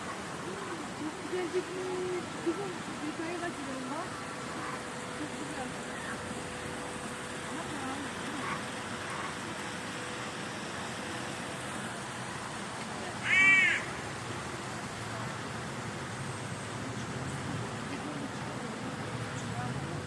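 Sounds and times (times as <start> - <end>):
outdoor background noise: 0.0 - 20.0
caw-like animal call: 13.2 - 14.0.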